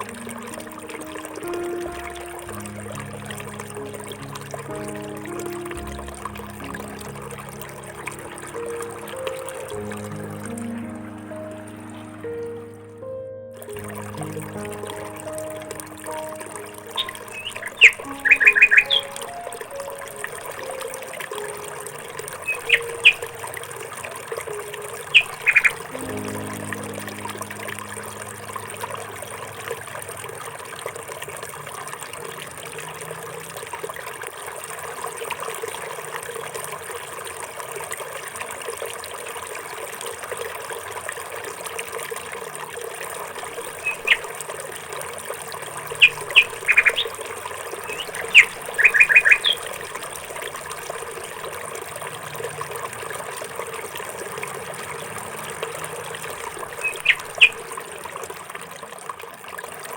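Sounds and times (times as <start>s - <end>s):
water trickling: 0.0s - 59.9s
high bird chirps: 16.8s - 19.6s, 22.4s - 23.4s, 25.0s - 27.7s, 43.8s - 44.3s, 45.9s - 47.2s, 47.8s - 49.8s, 56.7s - 57.7s.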